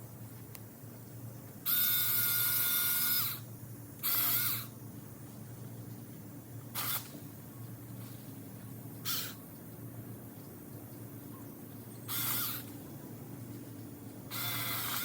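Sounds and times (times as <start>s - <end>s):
electric chainsaw motor whining: 12.1s - 12.7s, 14.3s - 15.0s.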